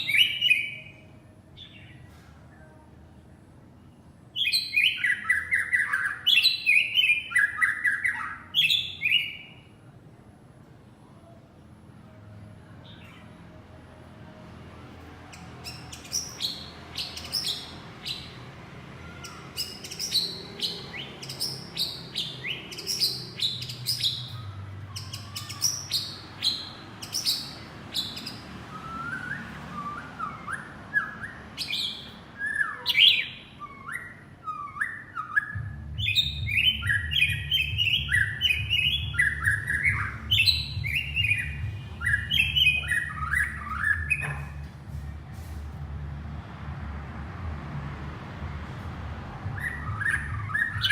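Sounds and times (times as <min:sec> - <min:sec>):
bird whistled song: 0:00.0 - 0:01.0, 0:04.4 - 0:09.7, 0:15.3 - 0:18.4, 0:19.2 - 0:44.6, 0:49.5 - 0:50.9.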